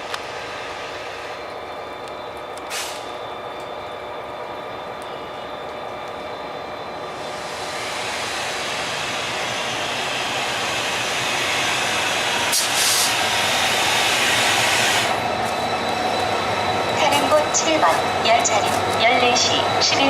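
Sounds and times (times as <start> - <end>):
train rail noise: 0.0 - 20.0.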